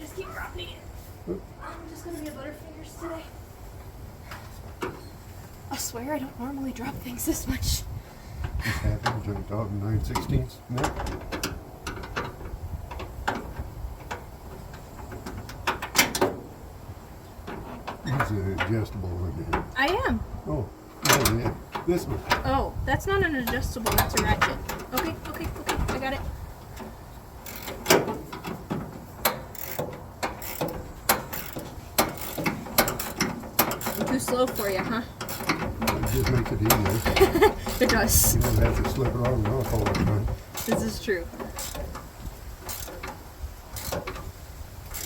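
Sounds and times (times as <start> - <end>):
metal clanks: 8.9 - 16.6, 20.9 - 45.0
wrenches clicking and clinking: 23.4 - 45.0.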